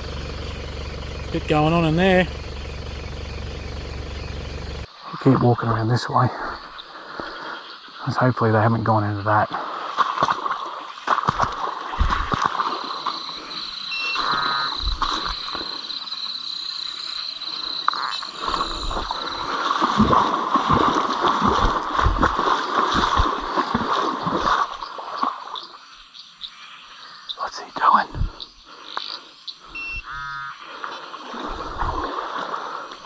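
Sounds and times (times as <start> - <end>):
footsteps wading through water: 19.4 - 25.4.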